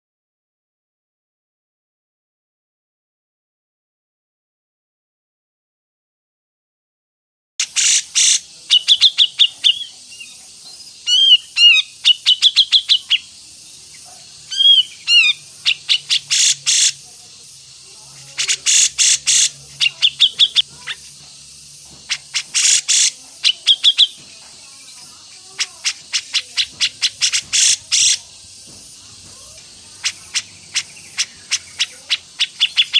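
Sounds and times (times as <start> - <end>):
songbird singing: 7.6 - 32.9.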